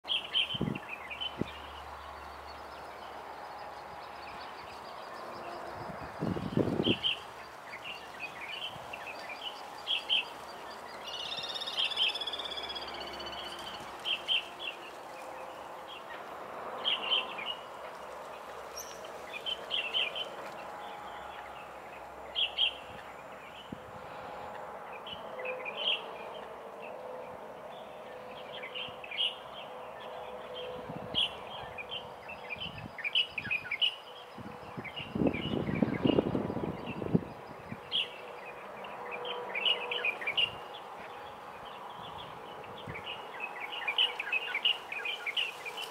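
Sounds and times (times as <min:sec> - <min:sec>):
birds chirping: 0:00.0 - 0:45.9
background hiss: 0:00.1 - 0:27.8, 0:37.5 - 0:45.9.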